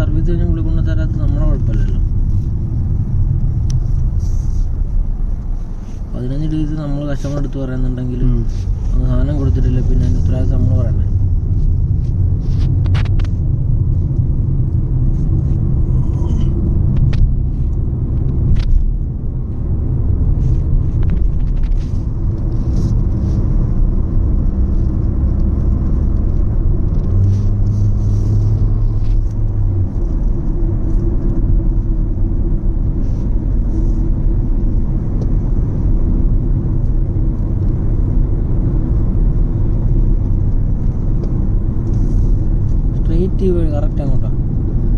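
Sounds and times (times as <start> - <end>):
engine and road rumble: 0.0 - 44.9
low hum: 8.0 - 43.2.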